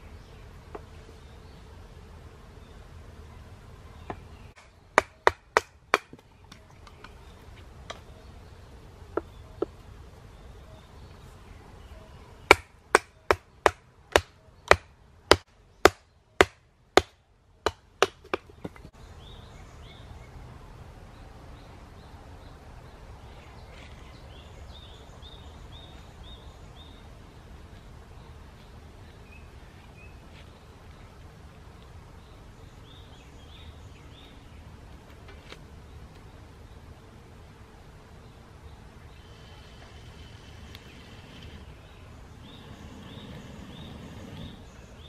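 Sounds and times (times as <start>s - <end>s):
hatchet chopping kindling: 4.1s - 6.6s, 12.5s - 18.9s
faint bird chirps: 9.2s - 12.5s.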